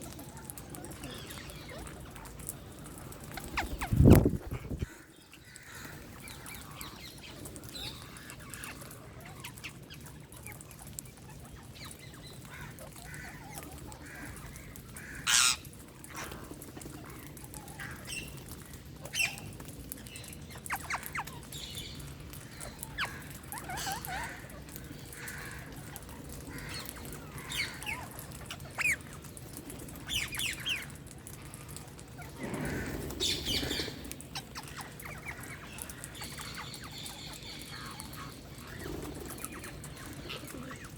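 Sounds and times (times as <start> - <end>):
parakeets screeching and chirping: 3.0 - 7.2, 15.1 - 16.6, 20.6 - 29.2, 32.2 - 40.9.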